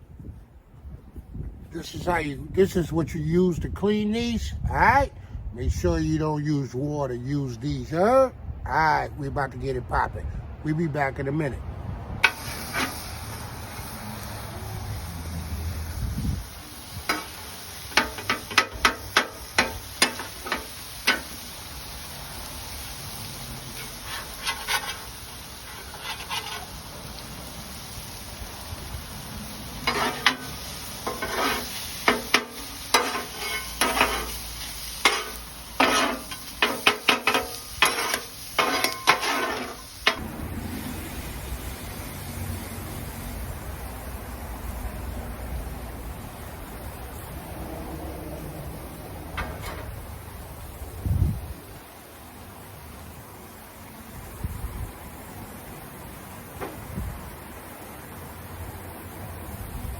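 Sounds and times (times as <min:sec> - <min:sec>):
metal scraping on grill grate: 0:12.2 - 0:13.9, 0:16.0 - 0:21.9, 0:22.6 - 0:27.6, 0:29.4 - 0:40.2, 0:49.2 - 0:50.2.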